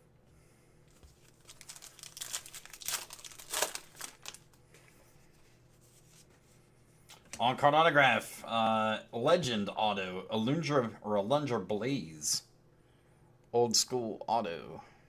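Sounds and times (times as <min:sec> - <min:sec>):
card pack wrappers crinkling: 0:00.9 - 0:04.6.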